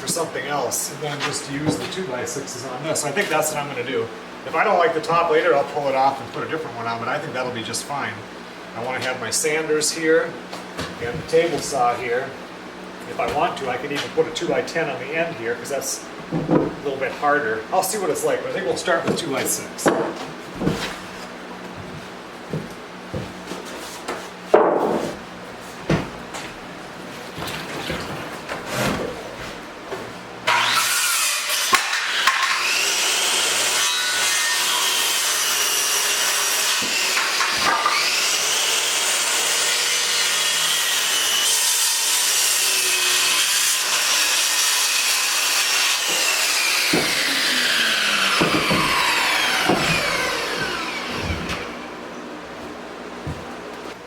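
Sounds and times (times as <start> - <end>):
power saw cutting wood: 30.4 - 52.0
knocks: 48.3 - 51.6.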